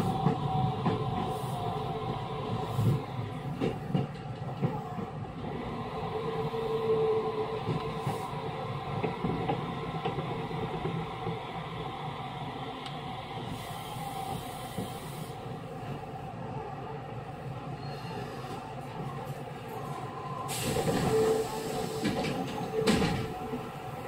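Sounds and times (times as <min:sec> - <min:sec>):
train running hum: 0:00.0 - 0:24.0.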